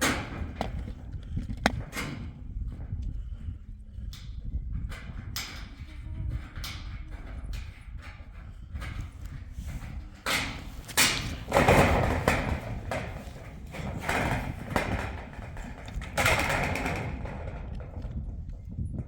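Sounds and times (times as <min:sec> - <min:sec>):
scraping rustling noise: 0:05.7 - 0:18.3
thuds: 0:09.7 - 0:18.3.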